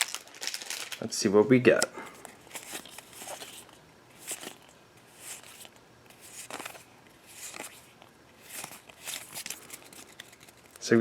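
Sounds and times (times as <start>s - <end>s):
cards sliding with soft swish: 2.5s - 10.7s.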